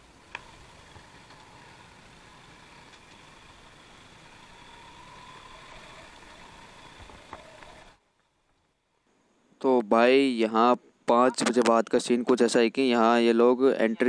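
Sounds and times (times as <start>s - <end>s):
motorcycle engine running faintly: 0.0s - 8.8s.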